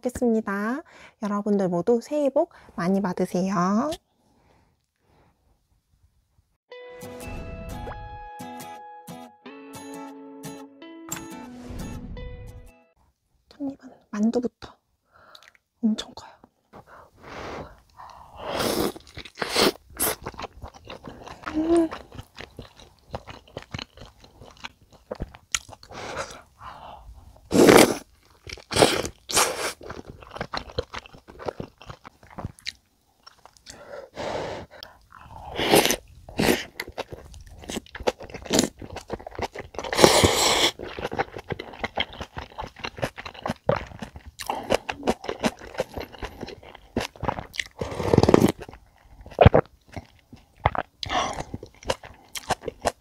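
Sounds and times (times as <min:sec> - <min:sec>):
wet chewing: 0:17.7 - 0:26.5, 0:27.4 - 0:33.9, 0:34.7 - 0:53.0
crunching food: 0:18.6 - 0:26.5, 0:27.5 - 0:33.8, 0:34.8 - 0:53.0.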